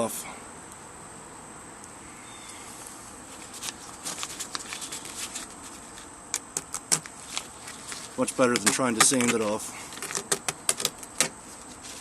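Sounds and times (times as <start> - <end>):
vinyl covering crackling and tearing: 3.3 - 12.0.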